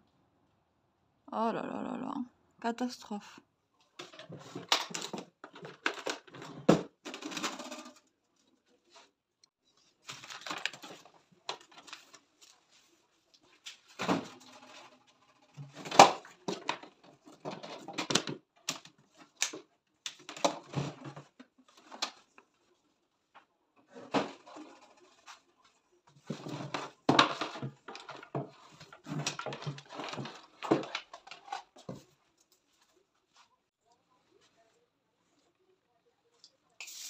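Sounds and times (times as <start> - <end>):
clicks and knocks of handling: 26.1 - 32.7.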